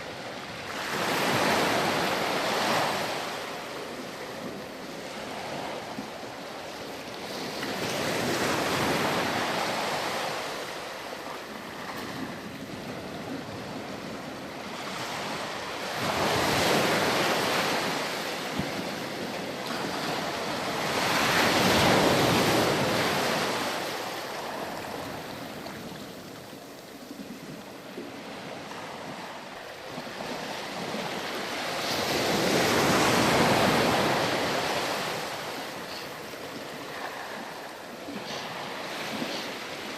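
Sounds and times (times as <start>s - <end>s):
ocean waves washing onto beach: 0.0s - 39.9s.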